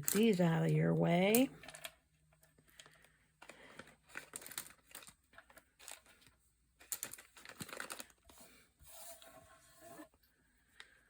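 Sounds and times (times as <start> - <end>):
paper rustling: 3.5 - 10.1.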